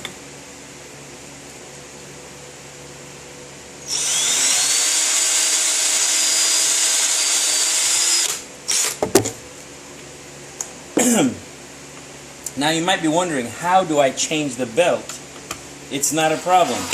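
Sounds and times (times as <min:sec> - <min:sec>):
power drill whining: 0:03.9 - 0:09.0, 0:16.3 - 0:16.9.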